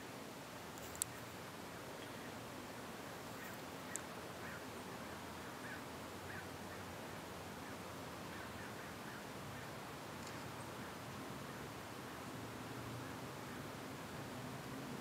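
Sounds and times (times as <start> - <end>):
outdoor background hiss: 0.0 - 15.0
small tick: 0.8 - 1.2.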